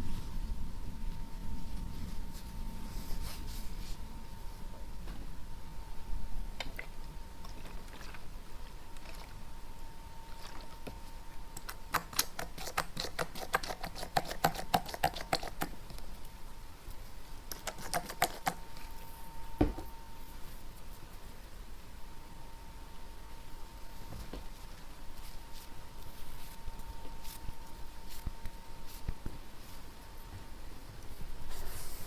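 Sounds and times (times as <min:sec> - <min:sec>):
faint steady hum: 0:00.0 - 0:32.0
soft thump: 0:19.6 - 0:20.0.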